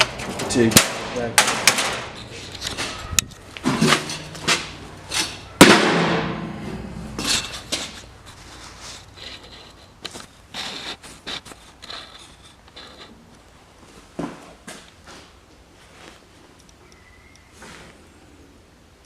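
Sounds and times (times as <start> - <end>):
metal parts knocking and clanking: 0.0 - 5.8, 7.2 - 8.0
loud ringing metal clang: 3.7 - 7.6.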